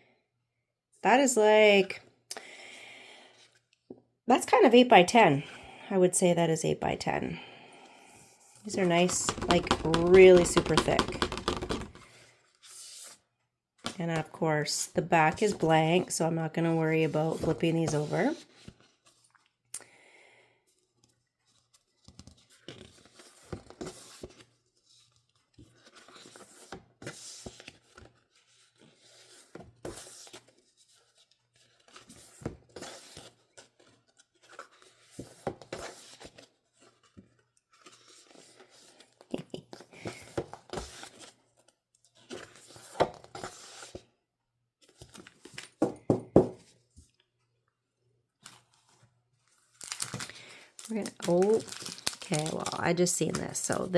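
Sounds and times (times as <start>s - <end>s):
photo prints rustling and sliding: 21.7s - 44.1s, 48.4s - 53.9s.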